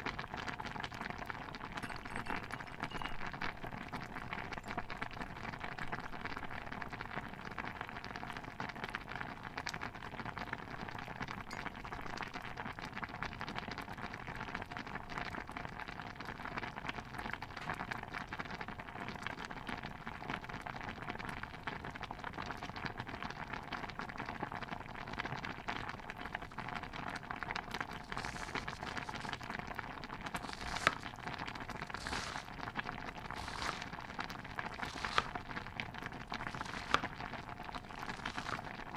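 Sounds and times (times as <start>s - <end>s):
stew bubbling in a pot: 0.0s - 38.9s.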